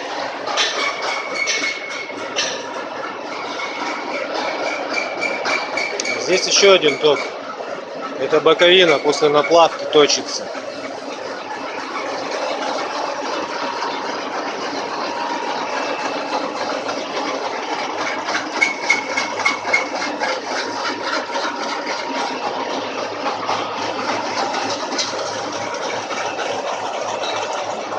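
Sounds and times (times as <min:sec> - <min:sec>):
lathe running: 0:00.0 - 0:27.9
sharp clicks from lathe cut: 0:05.0 - 0:06.2.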